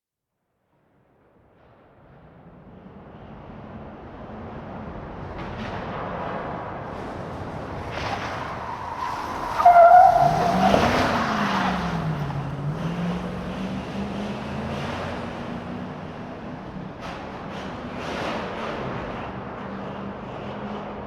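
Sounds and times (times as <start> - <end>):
tyre and road noise: 1.6 - 21.0
truck tyres squealing: 7.5 - 13.7.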